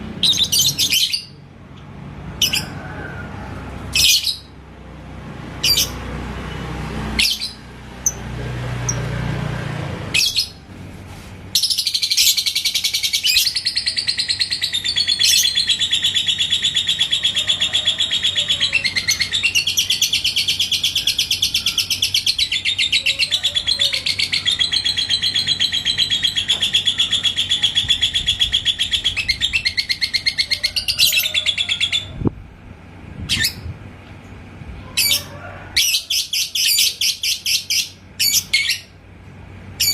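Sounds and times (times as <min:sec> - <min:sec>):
lovebird chattering trill: 0:05.6 - 0:06.0, 0:11.6 - 0:32.2, 0:35.0 - 0:38.9.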